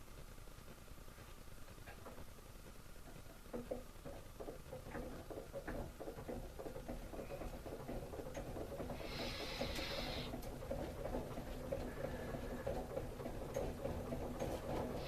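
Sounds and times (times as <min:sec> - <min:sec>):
rotor clicking and rattling: 0:01.7 - 0:15.0
hiss: 0:09.0 - 0:10.4.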